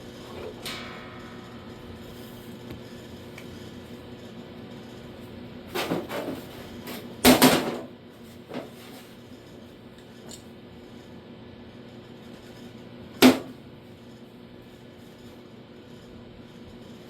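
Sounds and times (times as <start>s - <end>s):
metal clattering and clanking: 0.3s - 3.7s.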